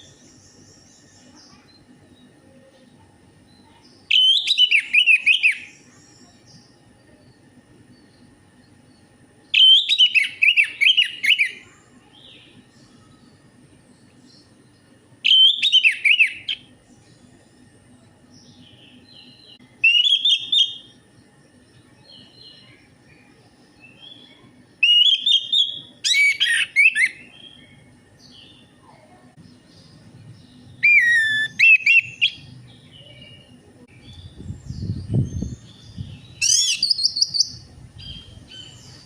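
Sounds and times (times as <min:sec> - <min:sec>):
thrush singing whistled notes: 0:04.1 - 0:05.7, 0:09.5 - 0:11.6, 0:15.2 - 0:16.7, 0:18.7 - 0:20.9, 0:24.8 - 0:27.7, 0:30.7 - 0:32.5, 0:34.0 - 0:38.8.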